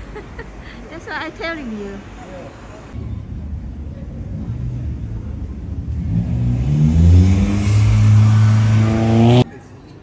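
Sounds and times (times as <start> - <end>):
car engine revving: 4.2 - 9.5.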